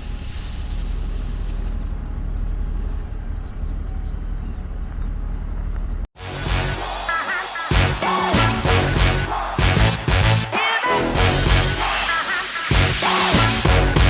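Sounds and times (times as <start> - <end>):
engine running with low throb: 0.0 - 6.9
music: 6.2 - 14.0.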